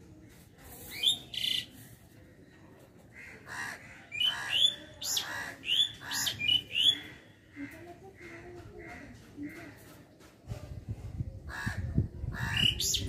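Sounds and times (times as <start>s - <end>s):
birds calling harshly: 0.9s - 1.8s, 3.1s - 9.8s, 11.5s - 13.0s.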